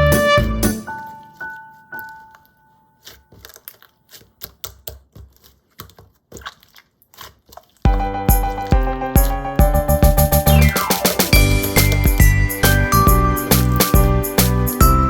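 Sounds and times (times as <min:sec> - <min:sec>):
background music: 0:00.0 - 0:02.8, 0:07.9 - 0:15.0
slime squishing and clicking: 0:01.0 - 0:09.4.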